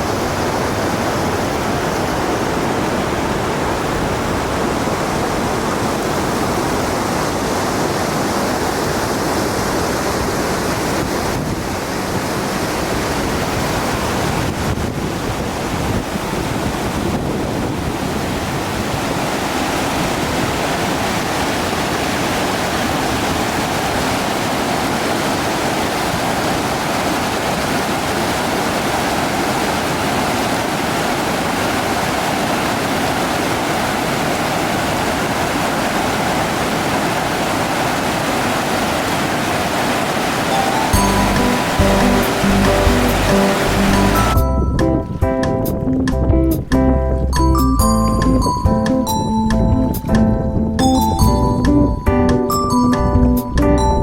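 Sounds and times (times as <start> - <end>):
waterfall rushing: 18.1 - 44.4.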